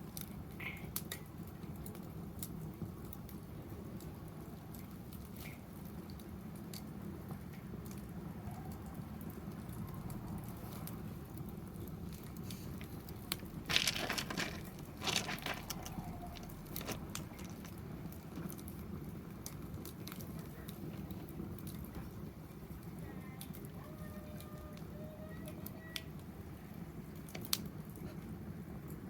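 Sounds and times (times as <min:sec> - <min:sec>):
fire pops: 0:00.0 - 0:08.1, 0:08.9 - 0:23.8, 0:25.9 - 0:29.0
wood fire crackling: 0:00.0 - 0:29.0
loud crunching bursts: 0:13.3 - 0:17.8.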